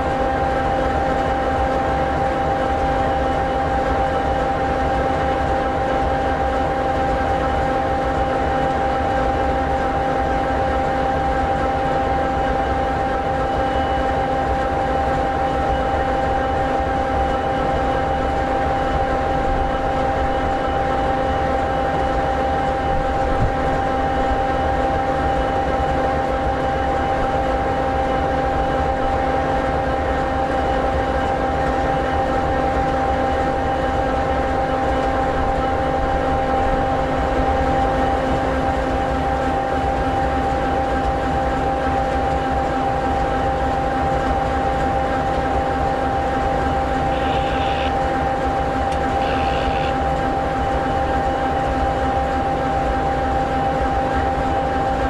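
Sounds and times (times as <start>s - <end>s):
diesel locomotive engine idling: 45.9s - 53.0s.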